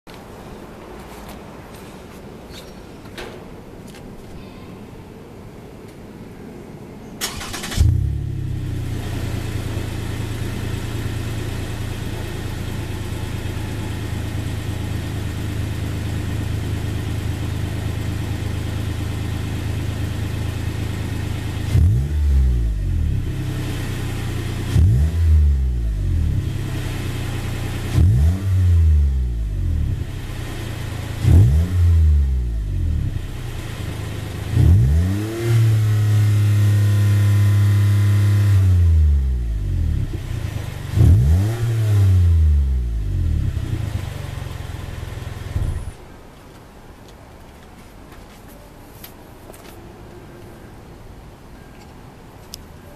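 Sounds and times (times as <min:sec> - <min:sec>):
car engine starting and idling: 0:06.6 - 0:46.1
engine revving: 0:07.2 - 0:10.9, 0:21.6 - 0:44.0.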